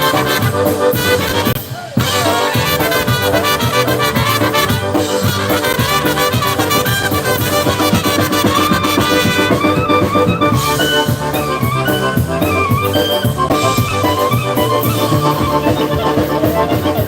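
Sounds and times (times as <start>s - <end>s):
brass horns melody: 0.0s - 17.0s
drum and bass beat: 0.0s - 17.0s
polka band playing: 0.0s - 17.0s.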